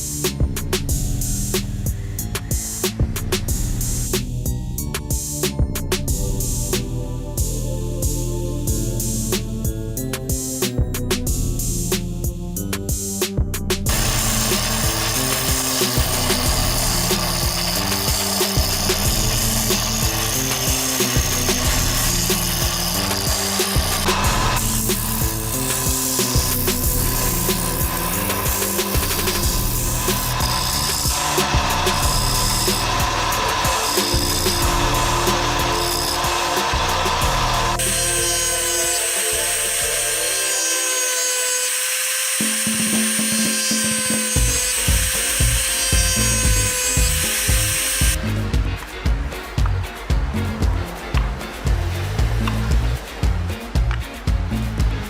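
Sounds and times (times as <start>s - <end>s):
background music with beat: 0.0s - 40.4s, 42.4s - 55.0s
power tool whirring on wood: 13.9s - 48.2s.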